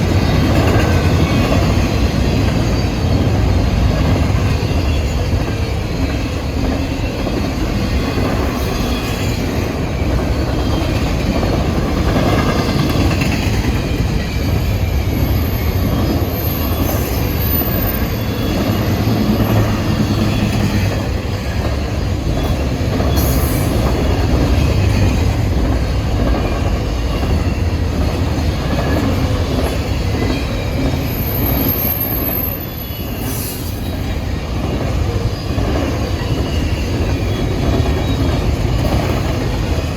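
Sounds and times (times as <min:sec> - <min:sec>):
railroad cars rolling: 0:00.0 - 0:39.9
faint wheel squeal: 0:30.2 - 0:38.5.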